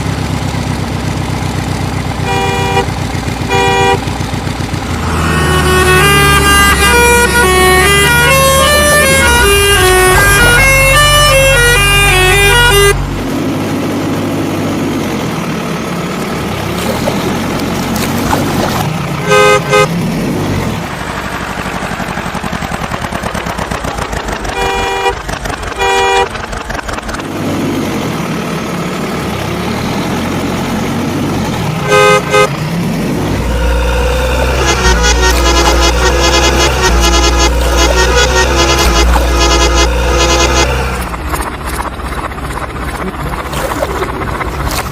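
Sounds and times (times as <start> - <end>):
vehicle engine running: 0.0 - 44.9
horn beeping: 2.1 - 13.2, 19.2 - 20.0, 24.4 - 26.6, 31.7 - 41.9.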